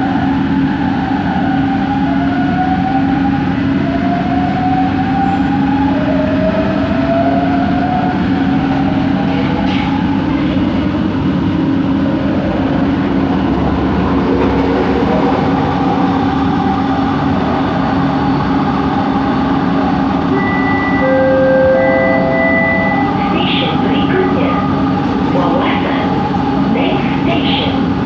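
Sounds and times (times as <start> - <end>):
train running rumble: 0.0 - 28.0
train motor hum: 7.8 - 28.0.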